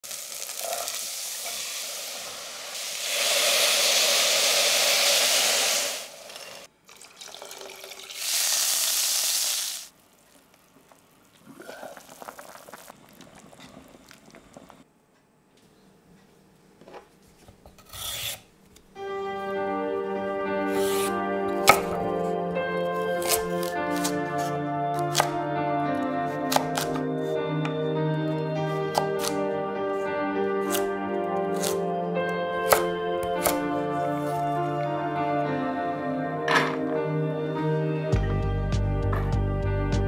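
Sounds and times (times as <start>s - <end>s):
food sizzling in hot oil: 0.0s - 6.7s, 7.8s - 9.9s
light music: 18.9s - 40.0s.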